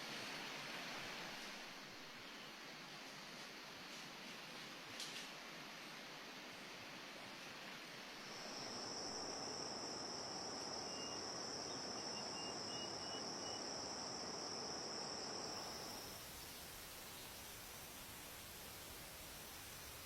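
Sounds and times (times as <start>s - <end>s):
background hiss: 0.0s - 20.0s
high-pitched insect trill: 8.2s - 17.3s.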